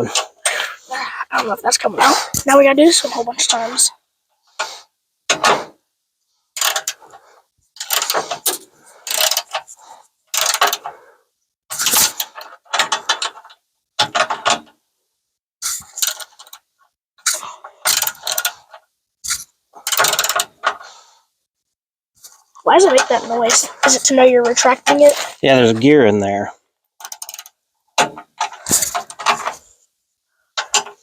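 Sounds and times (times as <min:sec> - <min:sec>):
ratchet wrench clicking: 0:06.6 - 0:07.0, 0:07.8 - 0:08.2, 0:09.0 - 0:09.6, 0:10.3 - 0:10.8, 0:17.9 - 0:18.5, 0:19.3 - 0:20.5, 0:27.0 - 0:27.5.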